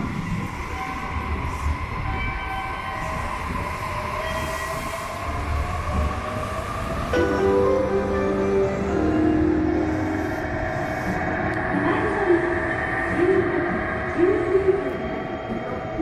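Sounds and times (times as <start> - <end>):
train rumble with motor tones: 0.0 - 16.0
melody of held notes: 7.2 - 10.5.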